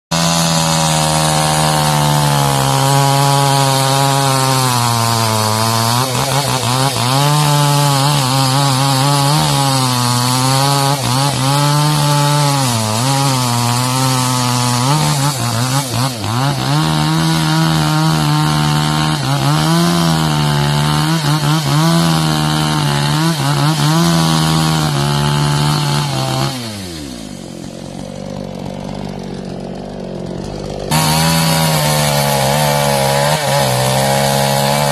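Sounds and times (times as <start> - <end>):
chainsaw cutting wood: 0.1 - 34.9
chainsaw idling: 0.1 - 34.9.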